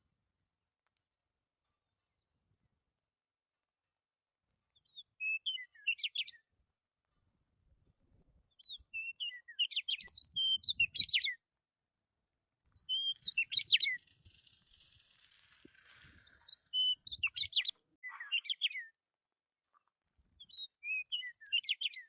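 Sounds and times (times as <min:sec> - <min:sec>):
bird chirping: 0:04.7 - 0:06.4, 0:08.5 - 0:11.4, 0:12.7 - 0:19.0, 0:20.4 - 0:22.0.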